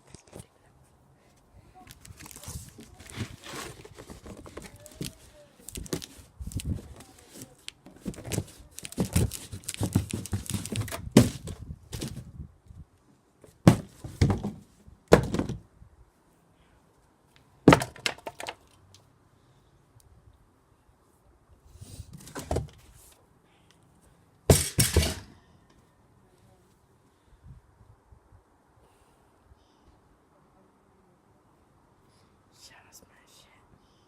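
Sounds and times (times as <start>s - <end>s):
cardboard crumpling: 1.9s - 12.2s
pole thudding on cardboard box: 9.0s - 12.3s, 13.6s - 15.6s.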